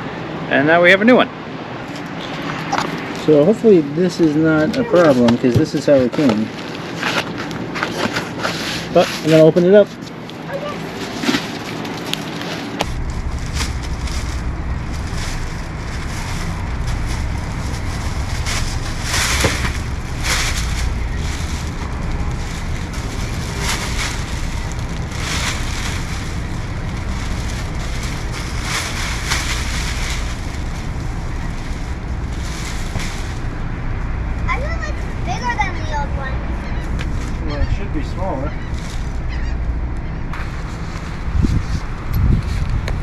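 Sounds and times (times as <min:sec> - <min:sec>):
short rustles and crackles: 0:04.2 - 0:35.9, 0:38.6 - 0:39.6
wind buffeting microphone: 0:12.8 - 0:43.0.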